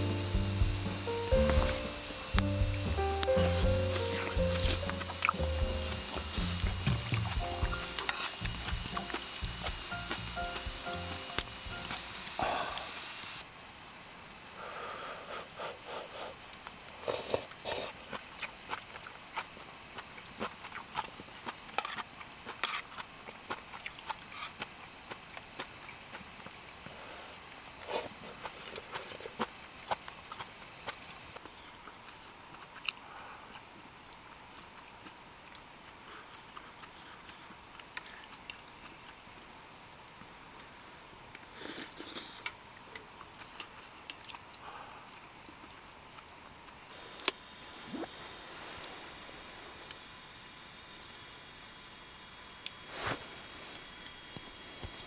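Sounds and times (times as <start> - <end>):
campfire crackling: 0.0 - 15.6, 44.1 - 55.0.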